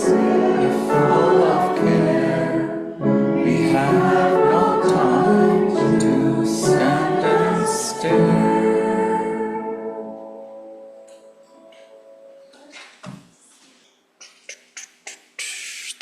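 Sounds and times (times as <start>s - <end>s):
congregation singing a hymn: 0.0s - 10.8s.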